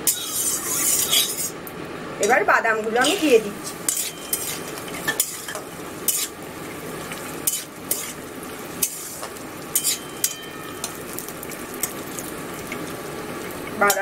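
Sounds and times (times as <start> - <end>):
metal spatula scraping pan: 0.0 - 1.6, 3.0 - 6.4, 7.4 - 8.2, 8.8 - 11.0
peanuts sizzling in oil: 0.0 - 1.6, 2.2 - 14.0.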